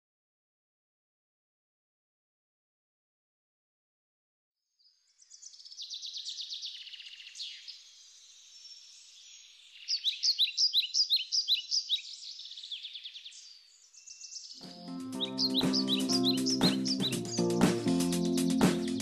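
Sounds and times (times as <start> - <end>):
songbirds singing: 5.1 - 19.0.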